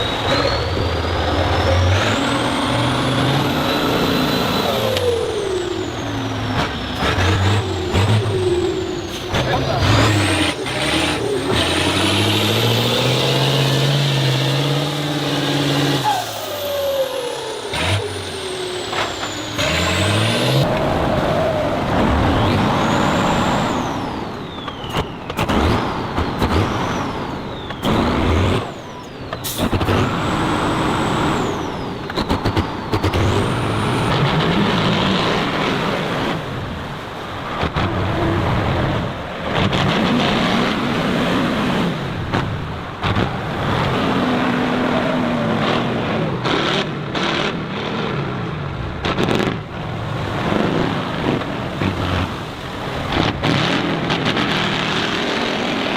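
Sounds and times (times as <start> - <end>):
heavy vehicle engines revving: 0.0 - 55.9.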